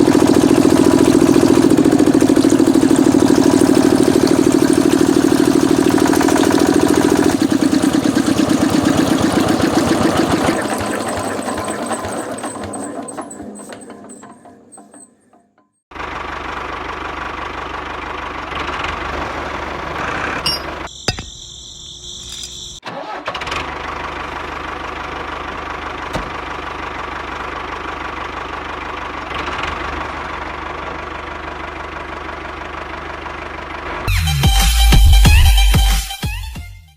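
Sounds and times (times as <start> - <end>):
miniature engine running: 0.0 - 14.9, 16.0 - 20.9.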